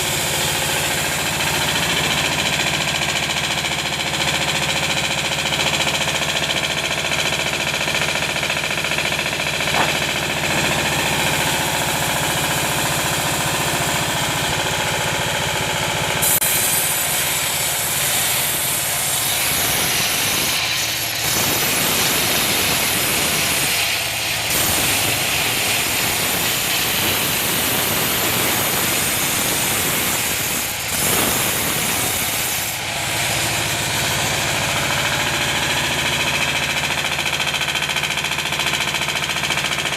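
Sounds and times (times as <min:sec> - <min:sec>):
saw blade hissing through wood: 0:00.0 - 0:03.7, 0:16.2 - 0:35.2
sawmill saw engine running: 0:00.0 - 0:39.9.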